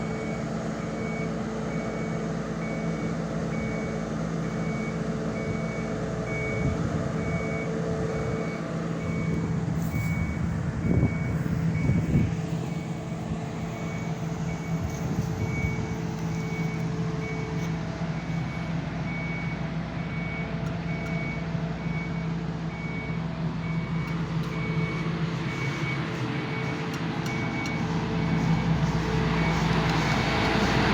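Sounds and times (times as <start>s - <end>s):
diesel engine running: 0.0s - 30.9s
warning alarm beeping: 4.5s - 13.0s.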